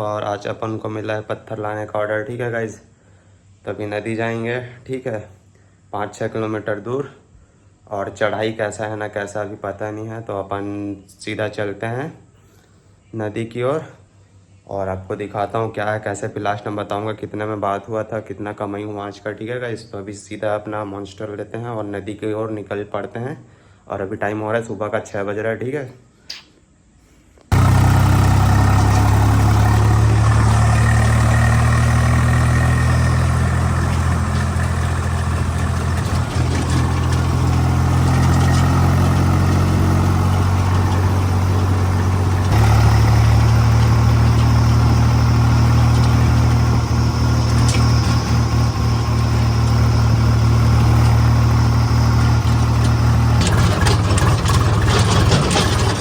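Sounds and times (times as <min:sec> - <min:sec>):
tractor diesel engine running: 0:27.5 - 0:56.0.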